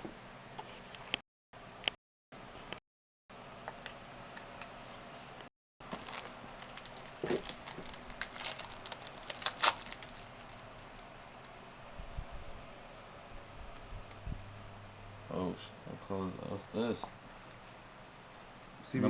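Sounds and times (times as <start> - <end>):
foil wrapper crinkling: 5.8 - 11.0
cards clicking and rustling: 5.9 - 11.0.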